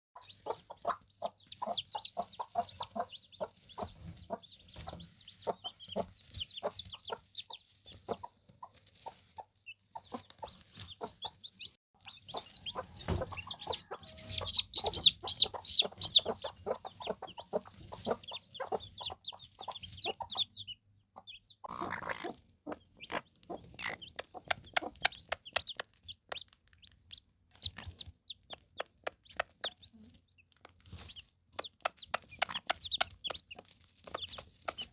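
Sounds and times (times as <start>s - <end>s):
chicks peeping: 0.2s - 34.9s
hens clucking: 0.2s - 34.9s.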